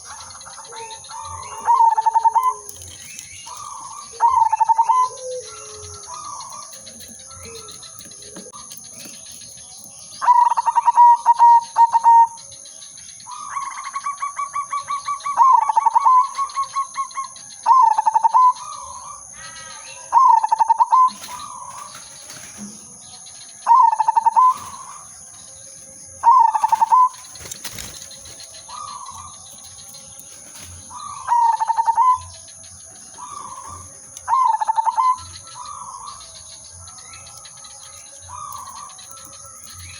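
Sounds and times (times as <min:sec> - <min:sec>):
dove cooing: 0:00.0 - 0:12.5, 0:13.3 - 0:22.9, 0:23.6 - 0:25.2, 0:25.8 - 0:36.6.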